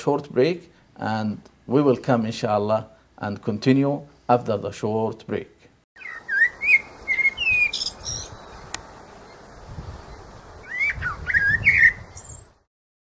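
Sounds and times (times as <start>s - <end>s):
birds chirping and whistling: 6.0s - 9.5s, 10.1s - 12.7s.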